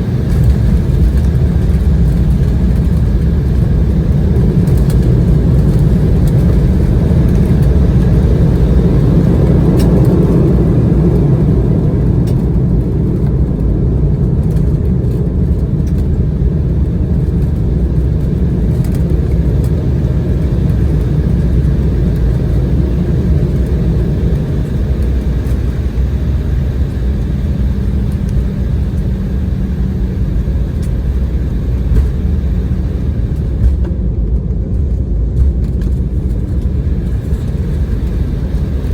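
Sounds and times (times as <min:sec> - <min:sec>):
jet engines rumbling: 0:00.0 - 0:38.9
wheels rolling on runway: 0:00.0 - 0:38.9.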